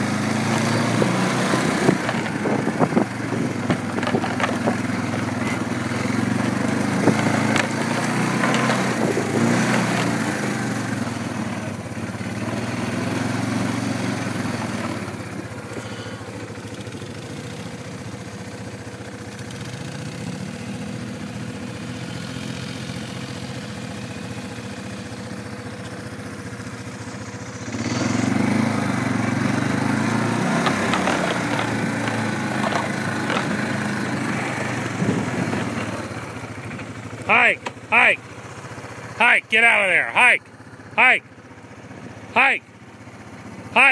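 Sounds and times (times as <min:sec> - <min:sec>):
engine running: 0:00.0 - 0:43.9.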